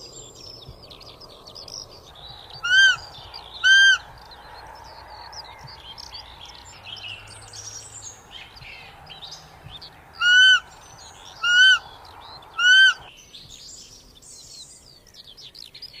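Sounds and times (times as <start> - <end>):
faint birdsong: 0.0 - 16.0
deer calling: 2.6 - 4.1, 10.1 - 10.8, 11.4 - 13.1.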